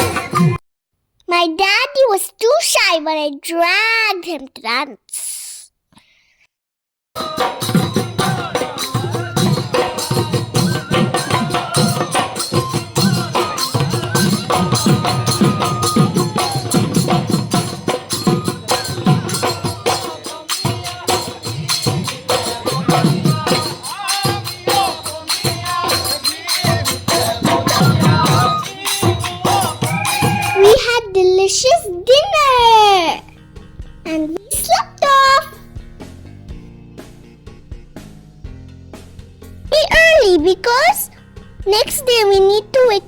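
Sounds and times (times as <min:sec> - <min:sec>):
fast steady drumming: 0:07.2 - 0:32.8
jingling cymbal percussion: 0:07.2 - 0:36.2, 0:39.8 - 0:43.0.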